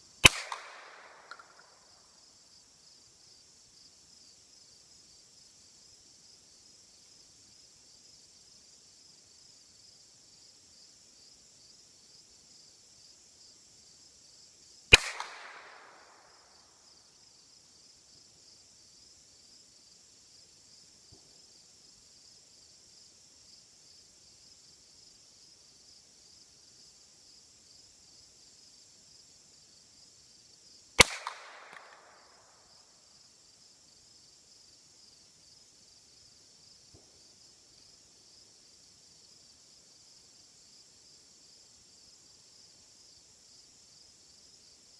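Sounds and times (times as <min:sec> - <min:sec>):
rifle shot with echo: 0:00.2 - 0:01.8, 0:14.9 - 0:16.5, 0:31.0 - 0:32.5.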